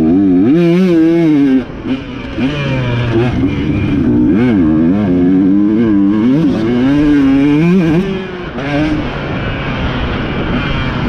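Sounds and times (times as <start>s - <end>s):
engines running: 0.0s - 11.0s
motorcycle engine revving: 0.0s - 11.0s.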